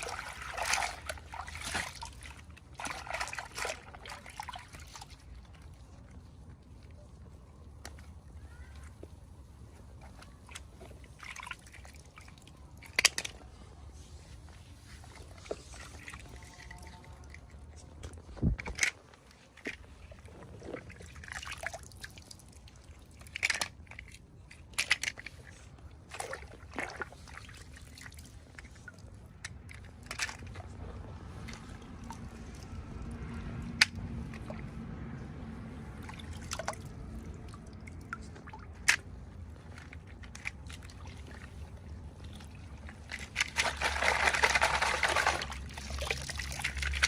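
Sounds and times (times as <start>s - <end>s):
low steady hum: 0.0s - 47.0s
plastic toys being handled: 12.7s - 21.0s, 23.1s - 26.1s, 38.1s - 47.0s.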